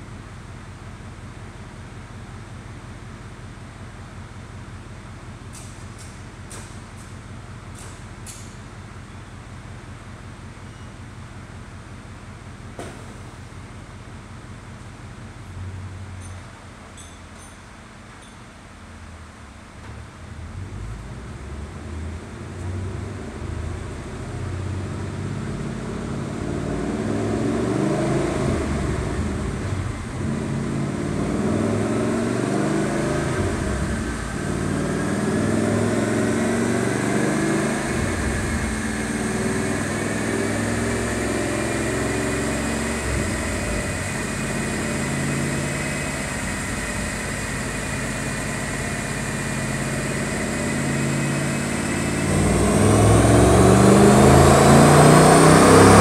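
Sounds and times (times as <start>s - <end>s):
car engine running on a dyno: 19.6s - 56.0s
whine rising in pitch: 25.7s - 56.0s.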